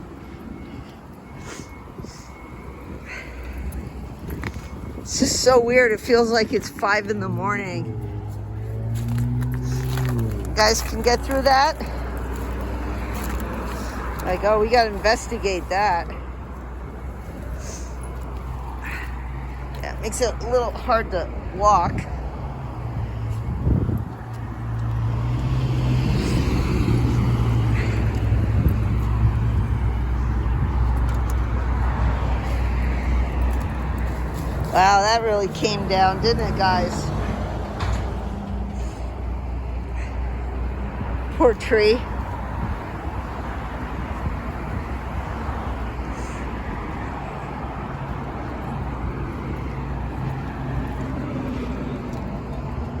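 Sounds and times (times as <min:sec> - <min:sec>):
low engine hum of traffic: 0:00.0 - 0:53.0
wind rumbling on microphone: 0:00.0 - 0:53.0
passing cars hissing: 0:00.5 - 0:14.2.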